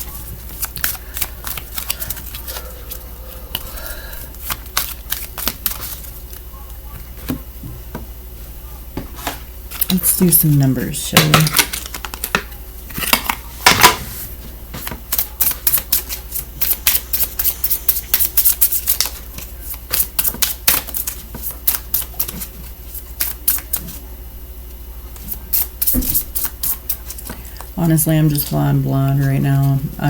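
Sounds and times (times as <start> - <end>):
cards being shuffled: 0.0 - 3.7, 4.3 - 6.5.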